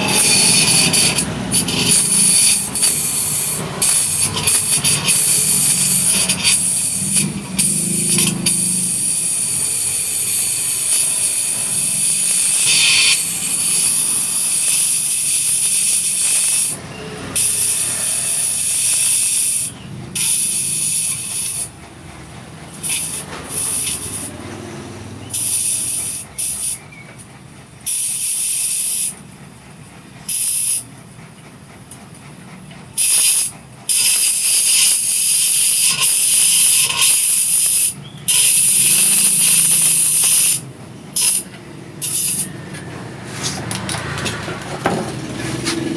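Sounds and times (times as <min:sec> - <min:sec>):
loud hissing bursts: 0:00.0 - 0:16.8, 0:17.4 - 0:21.8, 0:22.7 - 0:24.3, 0:33.0 - 0:42.5.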